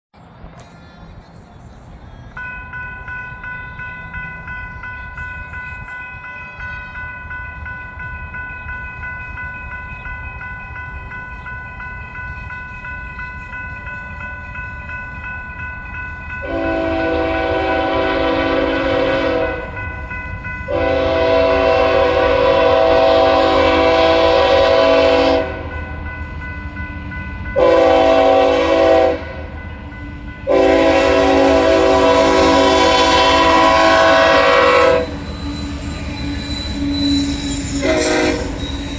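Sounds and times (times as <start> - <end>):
crossing warning bell ringing: 2.1 - 38.9
locomotive air horn blasts: 16.4 - 19.8, 20.7 - 25.8, 27.6 - 29.4, 30.4 - 35.3, 37.8 - 38.6.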